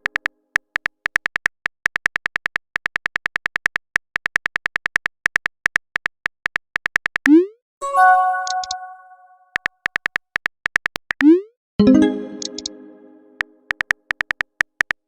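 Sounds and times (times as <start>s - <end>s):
short rising message tone: 7.8s - 9.4s, 11.8s - 13.4s
phone keyboard typing clicks: 8.3s - 8.9s, 12.0s - 12.8s, 13.4s - 15.0s.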